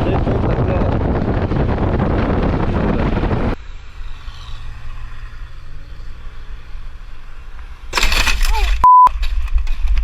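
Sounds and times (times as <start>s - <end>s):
wind noise on microphone: 0.0s - 3.6s
low engine hum: 0.0s - 7.9s.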